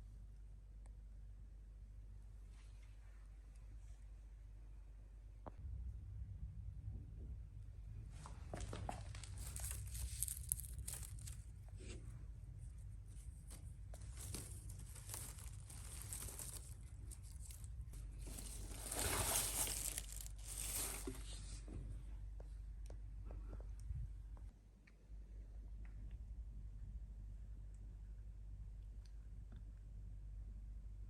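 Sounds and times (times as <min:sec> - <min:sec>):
rustling and crinkling: 0:08.1 - 0:22.0.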